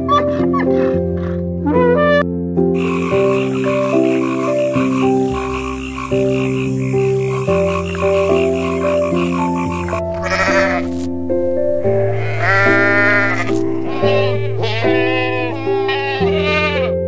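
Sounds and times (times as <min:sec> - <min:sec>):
frog croaking rhythmically: 0:00.0 - 0:11.1, 0:11.9 - 0:17.0
soft piano music: 0:00.0 - 0:17.0
goat bleating: 0:10.1 - 0:11.0, 0:12.0 - 0:17.0.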